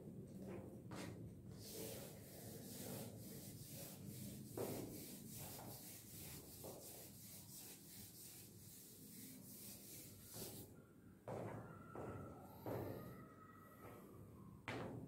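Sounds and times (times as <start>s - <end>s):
eraser wiping chalkboard: 1.6s - 10.7s.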